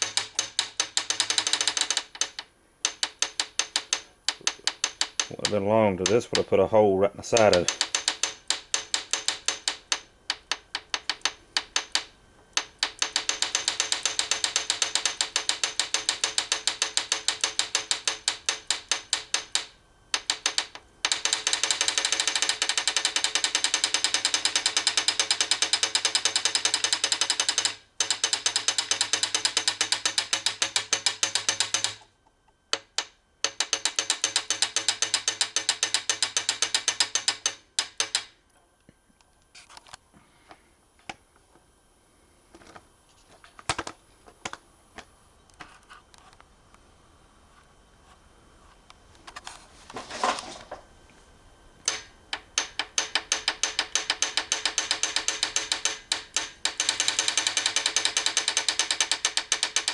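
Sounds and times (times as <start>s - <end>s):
ratchet wrench clicking: 0.0s - 6.2s, 7.4s - 32.0s, 51.8s - 59.9s.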